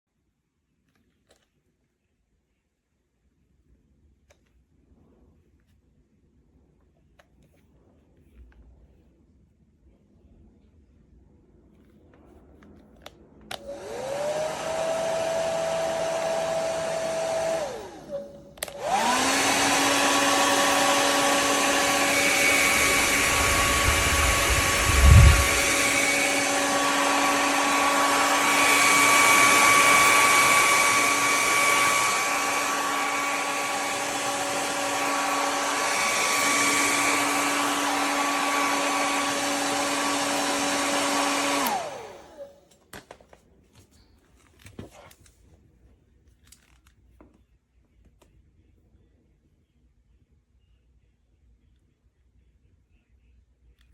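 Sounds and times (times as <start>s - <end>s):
hair dryer whining: 13.5s - 42.7s.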